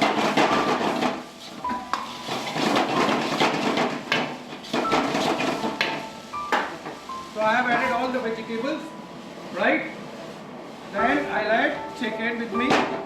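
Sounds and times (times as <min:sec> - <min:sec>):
vegetables sizzling: 0:00.0 - 0:08.8.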